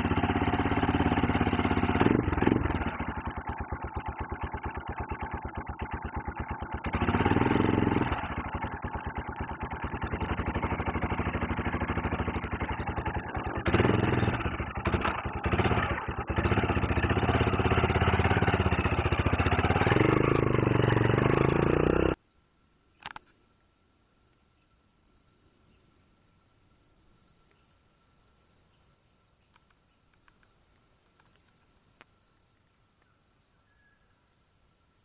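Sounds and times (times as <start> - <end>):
motorcycle engine idling and revving: 0.0 - 22.2.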